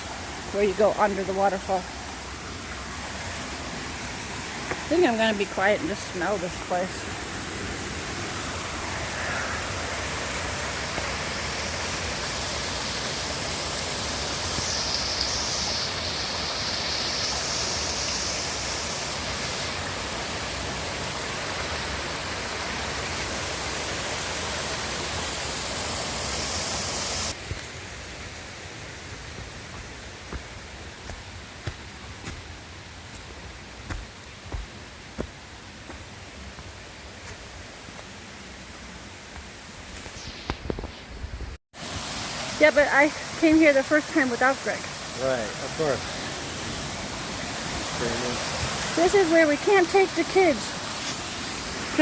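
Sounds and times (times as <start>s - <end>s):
waterfall roaring: 0.0s - 14.8s, 41.8s - 52.0s
flowing water: 0.0s - 41.2s, 41.8s - 52.0s.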